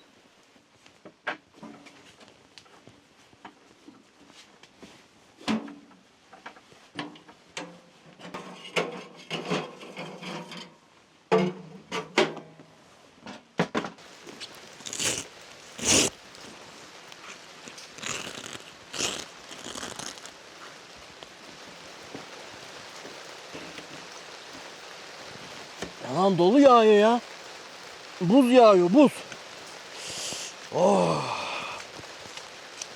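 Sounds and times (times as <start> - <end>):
rain hissing: 14.0 - 32.9
short hissing bursts: 14.4 - 20.8, 27.3 - 32.9.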